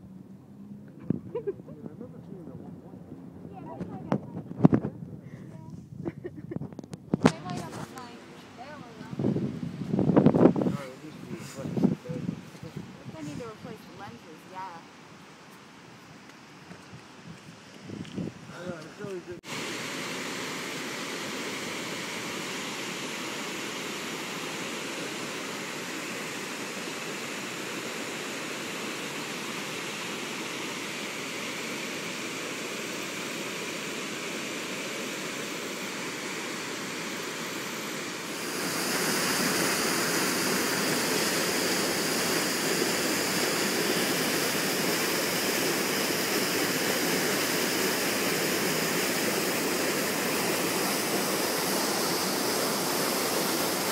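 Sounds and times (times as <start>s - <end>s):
storm water rushing: 19.4s - 53.9s.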